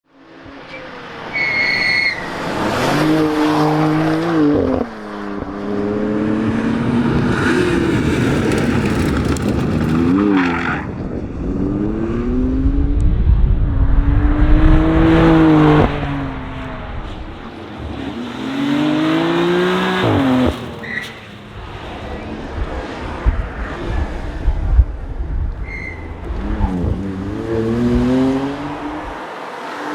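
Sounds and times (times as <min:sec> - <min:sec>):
car engine revving through gears: 0:02.3 - 0:13.1, 0:13.8 - 0:21.0, 0:25.7 - 0:29.9.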